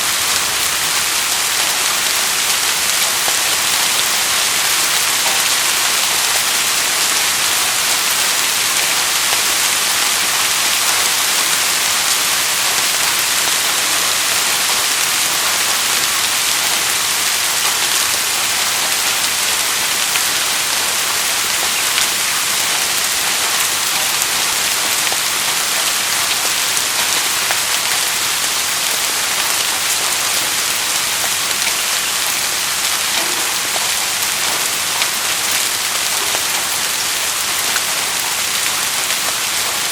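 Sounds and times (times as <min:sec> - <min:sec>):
raindrops pattering: 0:00.0 - 0:39.9
steady rain hiss: 0:00.0 - 0:39.9.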